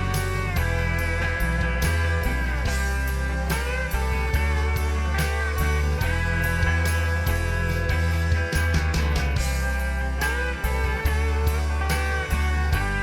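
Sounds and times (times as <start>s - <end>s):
rock music with electric guitar: 0.0s - 13.0s.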